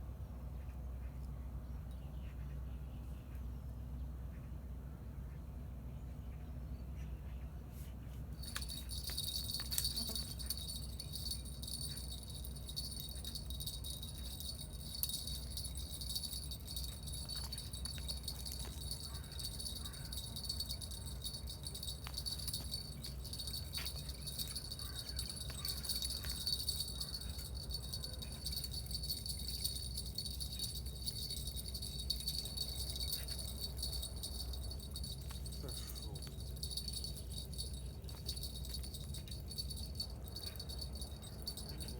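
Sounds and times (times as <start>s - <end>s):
insects chirring: 8.4s - 41.9s.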